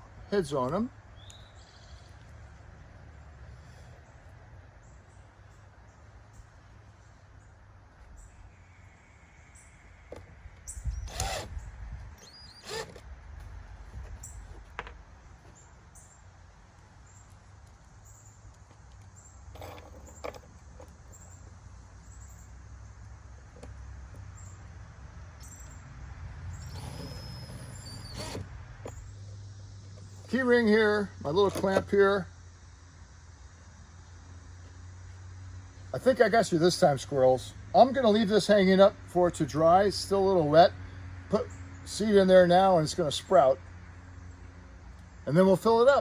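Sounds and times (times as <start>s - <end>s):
metal chain and screws clinking: 19.5s - 21.0s.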